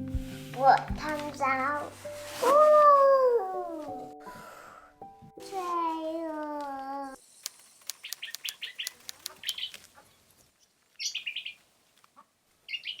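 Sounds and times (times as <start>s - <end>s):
small bird chirping: 7.2s - 11.6s, 12.7s - 13.0s
sharp clicks: 7.4s - 9.9s.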